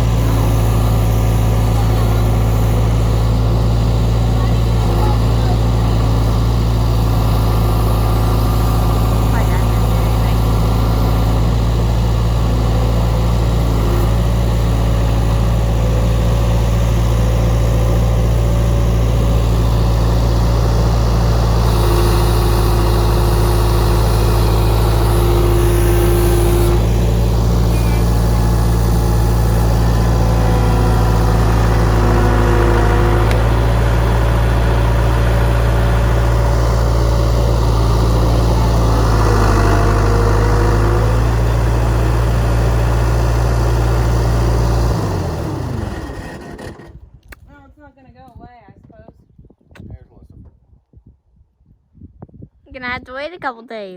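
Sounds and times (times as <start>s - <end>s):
diesel engine droning: 0.0s - 47.4s
high whining tone: 19.5s - 42.6s.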